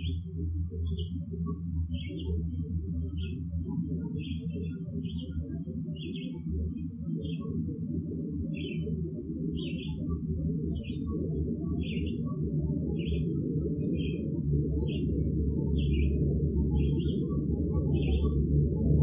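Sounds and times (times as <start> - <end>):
bird chirping: 8.5 - 8.9, 9.6 - 10.0, 11.8 - 12.2, 15.8 - 17.4.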